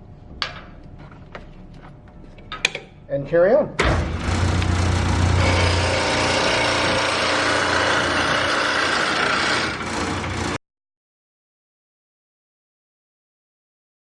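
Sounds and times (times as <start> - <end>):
lathe motor hum: 3.8 - 10.6
wood lathe tool cutting: 3.8 - 10.6.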